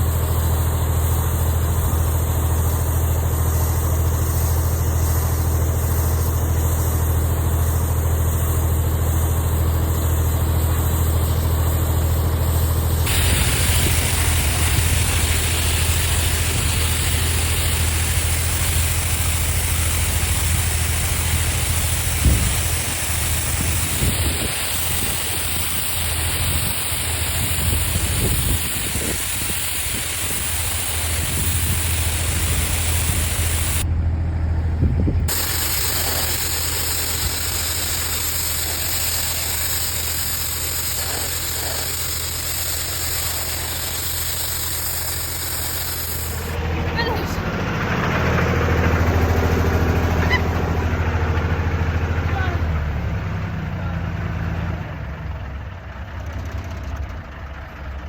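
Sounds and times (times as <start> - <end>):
tractor engine running: 0.0 - 58.0
high-pressure water jet hissing: 13.0 - 33.9, 35.3 - 47.5, 50.2 - 50.6.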